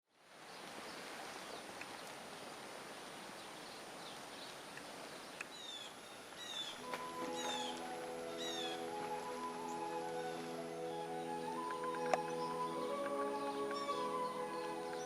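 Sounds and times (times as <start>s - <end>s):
wind blowing: 6.6s - 15.0s.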